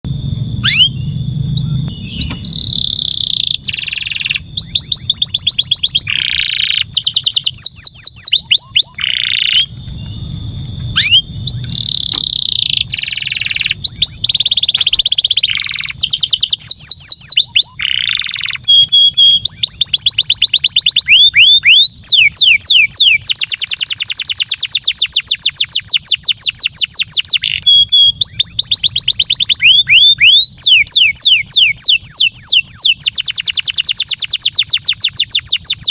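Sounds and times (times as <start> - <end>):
canary singing trills: 0.1 - 35.9.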